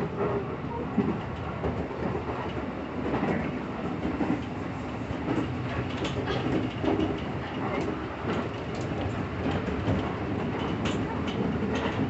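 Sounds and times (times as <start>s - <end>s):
train rumbling: 0.0s - 12.0s
wheels clacking over rail joints: 5.2s - 12.0s.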